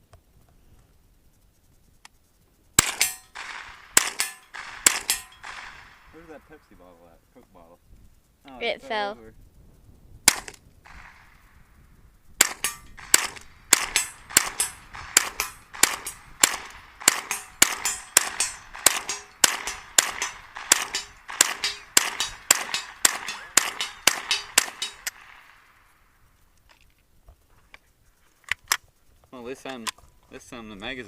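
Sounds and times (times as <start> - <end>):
gunshot echo: 2.8 - 6.8, 10.2 - 11.8, 12.4 - 26.0
rifle shots: 2.8 - 6.8, 10.2 - 11.8, 12.4 - 26.2.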